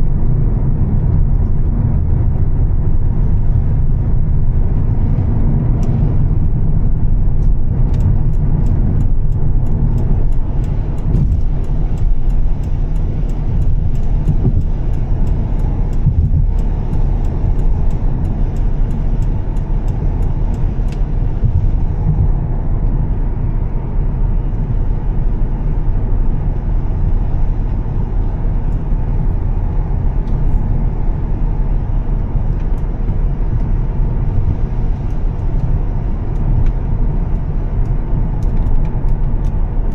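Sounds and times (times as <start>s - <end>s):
car engine and tyres on road: 0.0s - 39.9s
sharp little ticks: 7.3s - 22.2s.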